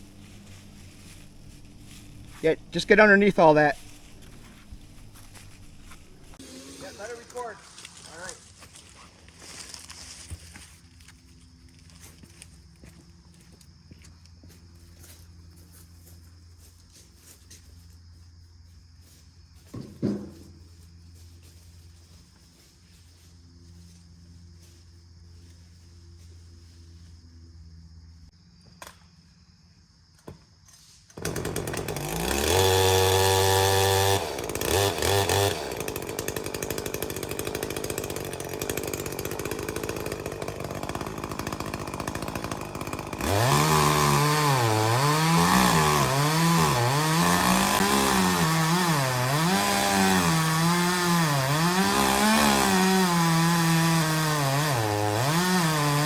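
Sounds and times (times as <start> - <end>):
chainsaw revving and cutting: 0.0 - 8.4, 31.2 - 56.0.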